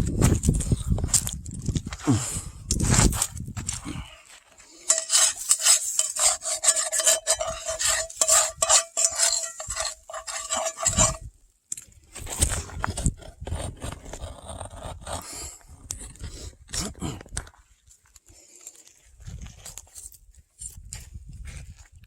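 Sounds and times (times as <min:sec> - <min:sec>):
metal utensil scraping skillet: 0:04.8 - 0:11.3.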